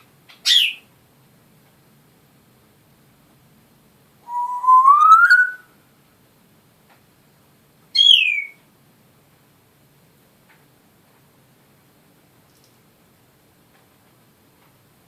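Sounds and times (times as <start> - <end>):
parrot whistling: 4.3 - 5.7, 8.0 - 8.6.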